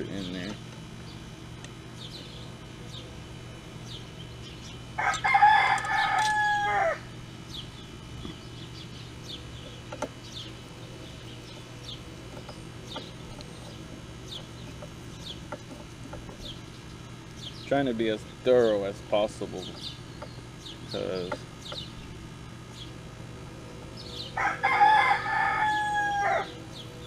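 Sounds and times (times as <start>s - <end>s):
small birds chirping: 0.0s - 27.0s
rooster crowing: 5.0s - 7.2s, 24.2s - 26.8s.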